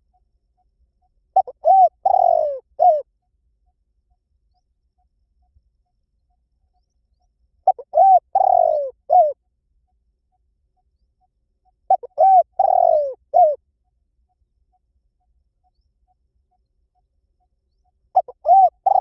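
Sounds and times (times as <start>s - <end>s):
dove cooing: 1.4s - 3.1s, 7.6s - 9.4s, 11.9s - 13.6s, 18.1s - 19.0s.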